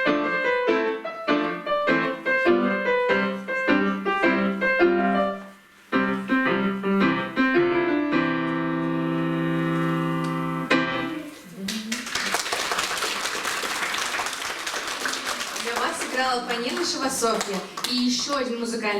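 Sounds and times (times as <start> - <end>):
solo piano chords: 0.0 - 11.4
audience applause: 11.7 - 18.6.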